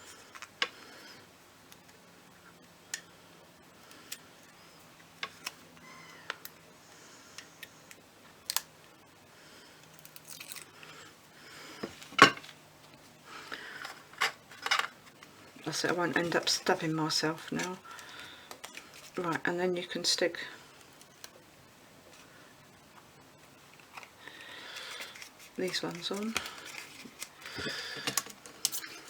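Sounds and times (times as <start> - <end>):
paper rustling: 23.8 - 29.0.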